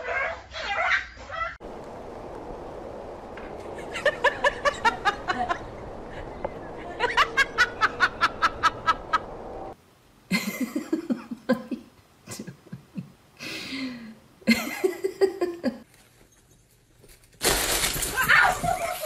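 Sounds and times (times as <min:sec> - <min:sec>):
person laughing: 0:03.8 - 0:05.7, 0:06.8 - 0:09.3, 0:10.3 - 0:13.2, 0:14.4 - 0:15.8
lower voice laughing: 0:03.8 - 0:09.4.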